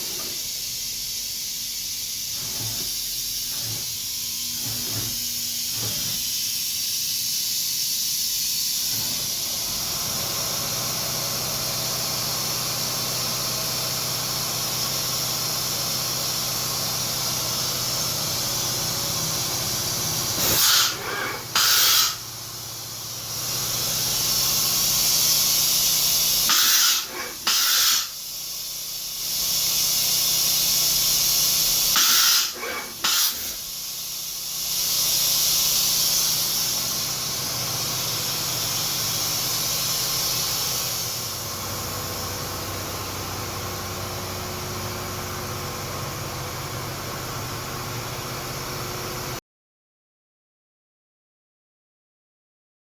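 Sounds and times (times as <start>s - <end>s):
short loud hissing bursts: 0.0s - 9.8s, 16.1s - 41.4s.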